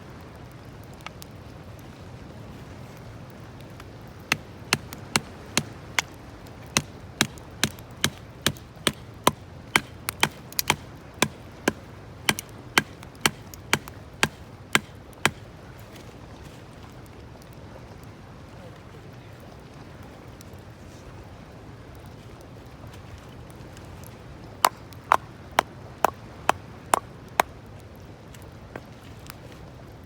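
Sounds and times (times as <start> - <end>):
sharp knocks: 6.8 - 15.4.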